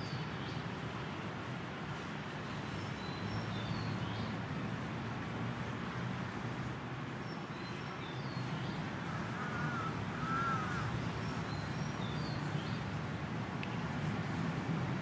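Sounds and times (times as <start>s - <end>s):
steady background noise: 0.0s - 15.0s
arched bird calls: 9.3s - 11.0s.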